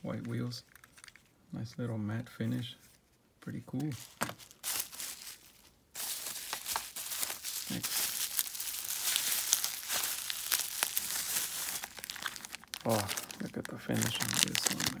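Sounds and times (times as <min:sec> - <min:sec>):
packaging crinkling and tearing: 0:04.0 - 0:15.0.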